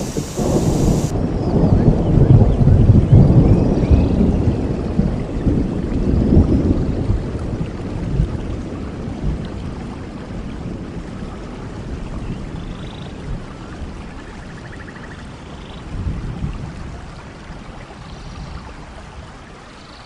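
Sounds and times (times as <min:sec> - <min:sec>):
faint high chirps: 0:00.0 - 0:01.1
waterfall rushing: 0:00.0 - 0:01.1.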